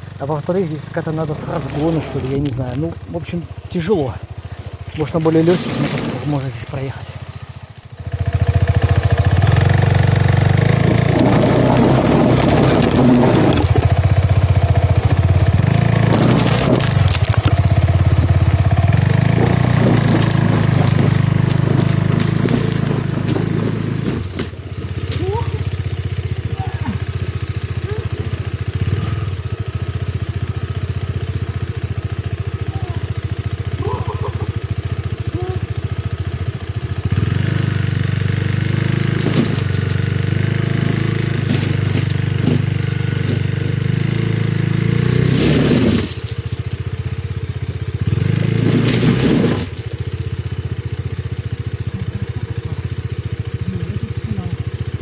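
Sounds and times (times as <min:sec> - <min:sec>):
motorcycle engine revving: 0:00.0 - 0:55.0
tyre spinning on loose rock: 0:10.7 - 0:14.3, 0:15.6 - 0:25.3, 0:39.2 - 0:40.2, 0:40.8 - 0:43.7, 0:45.1 - 0:46.8, 0:48.5 - 0:50.2.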